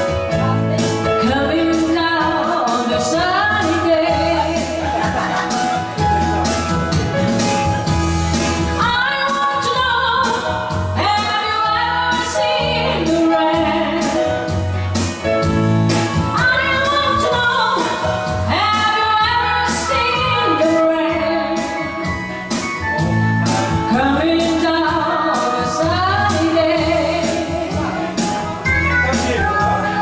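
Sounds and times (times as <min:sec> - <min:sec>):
woman singing pop song: 0:00.0 - 0:06.0, 0:08.4 - 0:14.8, 0:16.0 - 0:22.7, 0:23.5 - 0:30.0
band with steady beat: 0:00.0 - 0:30.0.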